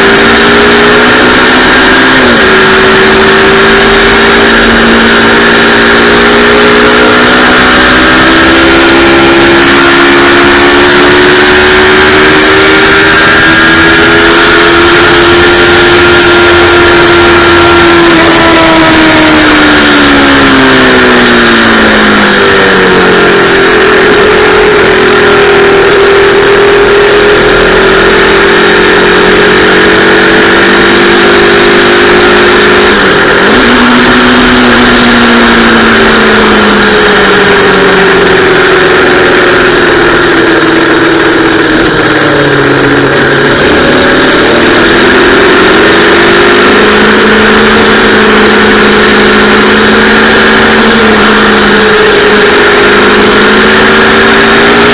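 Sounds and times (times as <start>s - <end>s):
motorcycle engine running hard: 0.0s - 54.9s.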